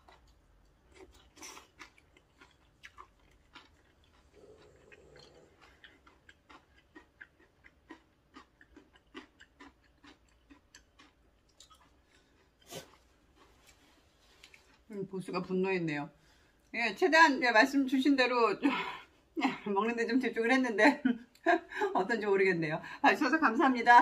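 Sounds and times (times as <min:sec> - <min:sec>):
person chewing noodles: 0:00.0 - 0:14.9.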